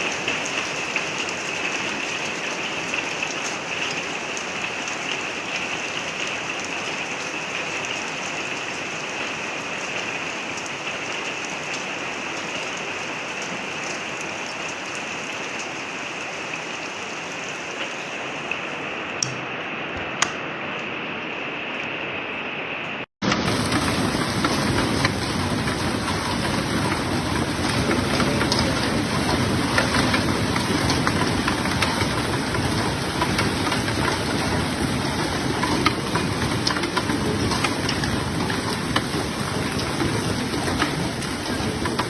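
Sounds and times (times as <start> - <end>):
heavy rain pelting hard surfaces: 0.0 - 42.0.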